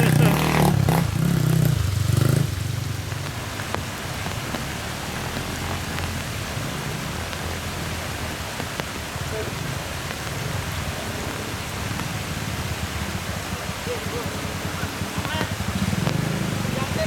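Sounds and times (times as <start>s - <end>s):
motorcycle engine idling: 0.0s - 7.0s, 12.0s - 17.0s
heavy rain hiss: 0.0s - 17.0s.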